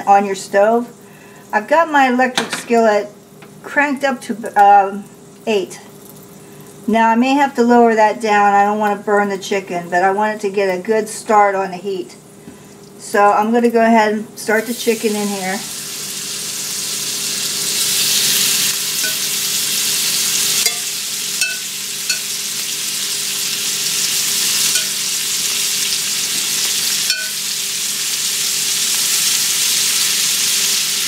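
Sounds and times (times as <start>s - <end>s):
meat sizzling in grease: 14.5s - 31.0s.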